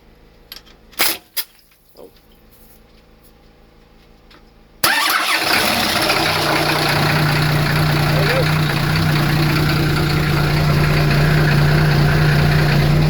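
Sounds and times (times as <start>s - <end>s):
diesel engine starting and running: 4.8s - 13.0s.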